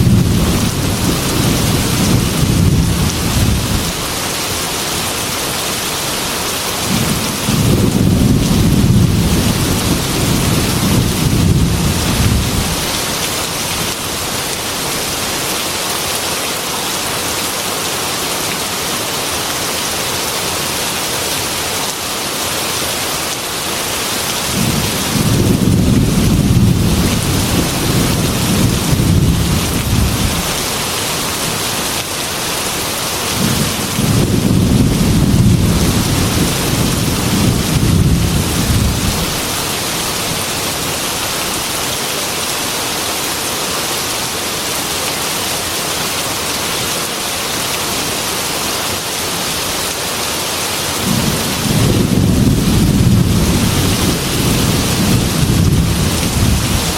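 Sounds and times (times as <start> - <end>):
rolling thunder: 0.0 - 4.0, 6.8 - 13.0, 24.5 - 30.7, 33.4 - 39.5, 51.0 - 56.9
heavy rain on a metal roof: 0.0 - 56.9.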